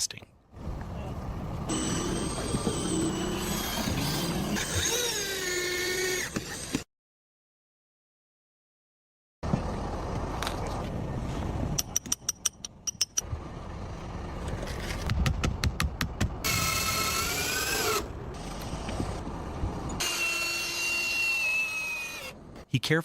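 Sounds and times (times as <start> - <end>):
power tool whining: 1.7 - 6.8, 16.4 - 19.2, 19.9 - 22.4.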